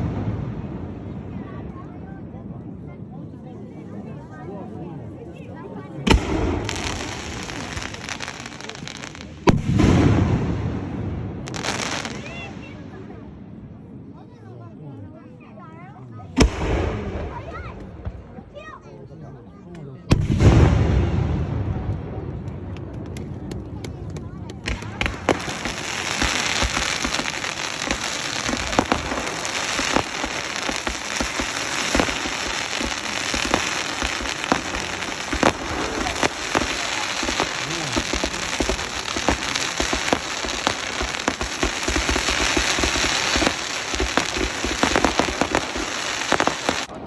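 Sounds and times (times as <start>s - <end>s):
fireworks crackling: 0.0s - 1.6s, 6.0s - 13.2s, 20.1s - 47.0s
loud firework cracks: 6.0s - 12.9s, 16.4s - 18.2s, 20.1s - 47.0s.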